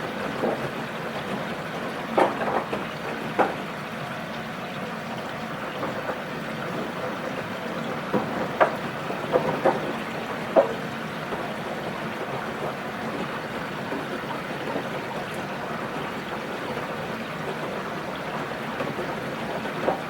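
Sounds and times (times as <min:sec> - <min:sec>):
washing machine sloshing: 0:00.0 - 0:20.0
laundry splashing and thudding: 0:05.8 - 0:20.0.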